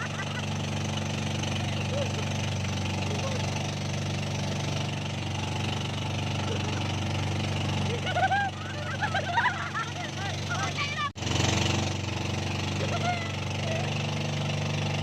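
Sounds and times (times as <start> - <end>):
engine running steadily: 0.0 - 15.0
voices: 1.4 - 3.7, 7.8 - 11.2.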